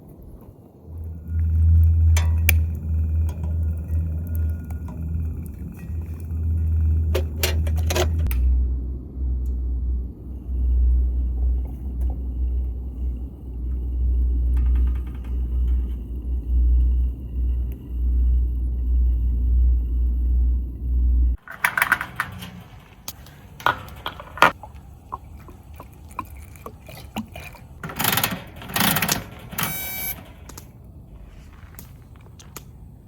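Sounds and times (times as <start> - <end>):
clattering bursts: 1.1 - 8.5, 20.7 - 32.6.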